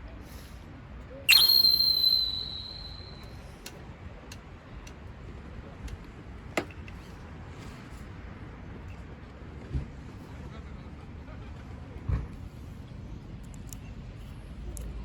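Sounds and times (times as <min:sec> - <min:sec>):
metallic strike with ringing tone: 0:01.3 - 0:03.2.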